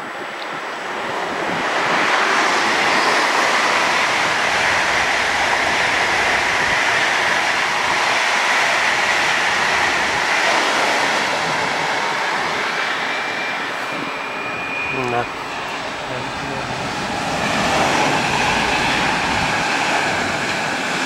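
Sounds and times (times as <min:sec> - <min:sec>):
high-speed train passing: 0:00.0 - 0:21.0
faint high whine: 0:12.7 - 0:17.1.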